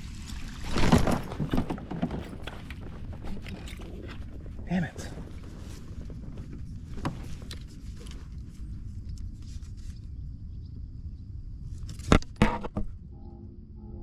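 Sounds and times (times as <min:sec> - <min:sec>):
steady low rumble: 0:02.2 - 0:14.0.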